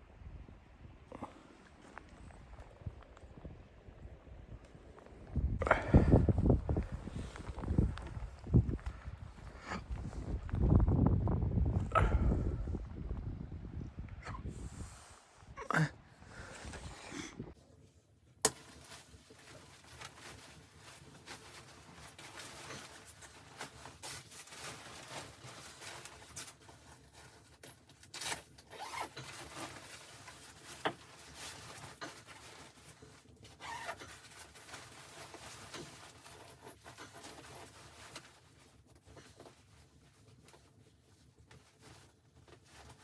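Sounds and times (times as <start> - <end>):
rustling and scraping: 16.4 - 43.0.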